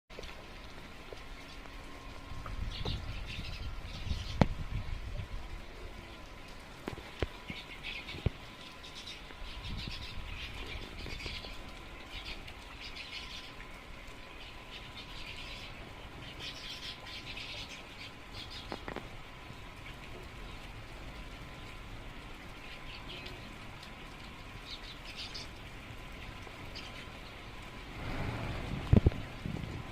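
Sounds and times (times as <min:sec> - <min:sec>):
small birds chirping: 0:07.4 - 0:19.1, 0:22.5 - 0:25.6, 0:26.2 - 0:27.4.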